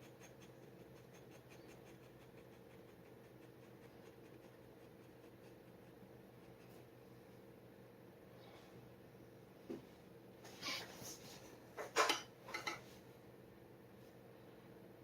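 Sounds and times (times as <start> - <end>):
dip pen scratching on paper: 0.0 - 6.8
low steady hum: 0.0 - 15.0.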